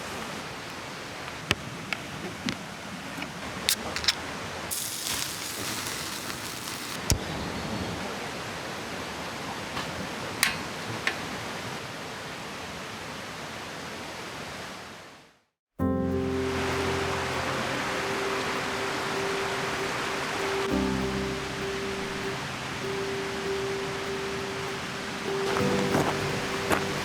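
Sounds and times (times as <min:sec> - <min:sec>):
river rushing: 0:16.0 - 0:27.0.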